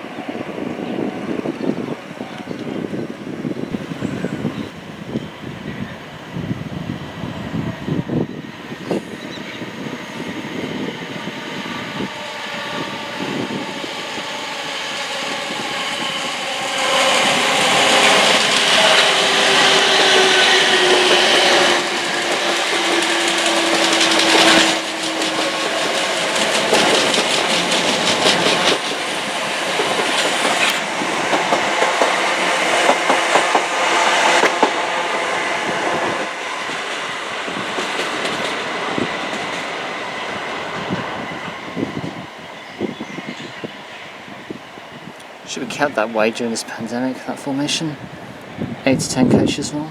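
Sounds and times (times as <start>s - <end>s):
passenger train passing: 0.0s - 49.9s
wheels clicking over rail joints: 13.0s - 34.8s.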